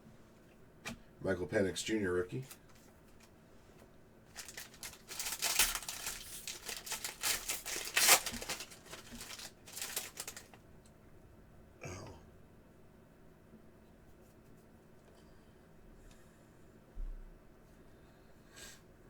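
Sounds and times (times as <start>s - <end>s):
plastic wrapper crinkling and tearing: 4.3s - 10.6s.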